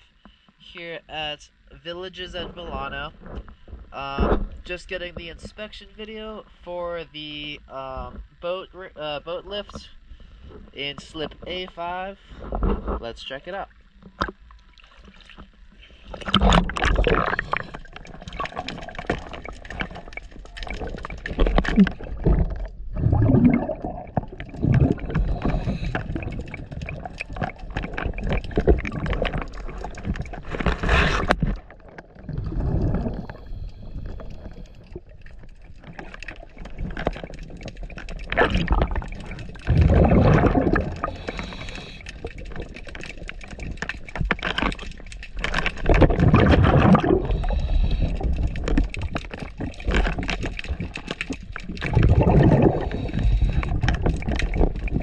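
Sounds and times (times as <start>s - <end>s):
underwater water noise: 1.5s - 55.0s
gurgling exhaled bubbles: 14.2s - 55.0s.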